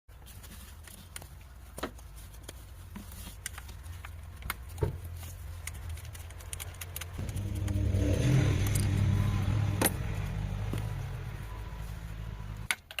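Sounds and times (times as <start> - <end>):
car engine humming: 6.9 - 12.7.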